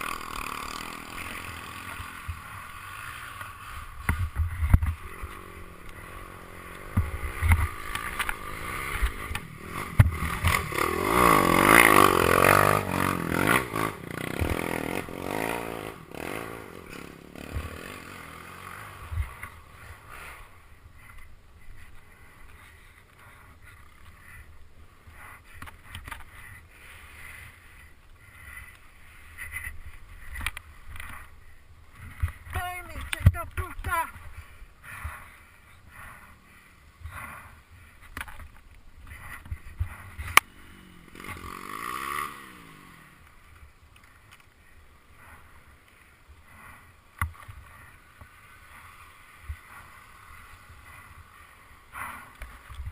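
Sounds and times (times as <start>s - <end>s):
motorcycle passing by: 0.0s - 21.2s, 39.1s - 52.9s.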